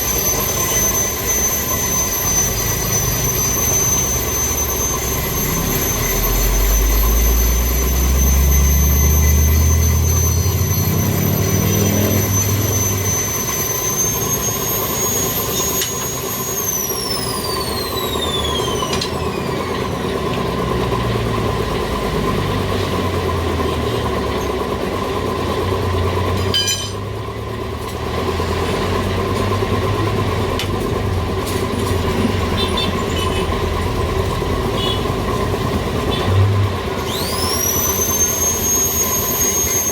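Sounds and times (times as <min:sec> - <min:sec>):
high-pitched squealing: 0:00.0 - 0:20.4, 0:28.6 - 0:39.9
tyre changer motor hum: 0:00.0 - 0:39.9.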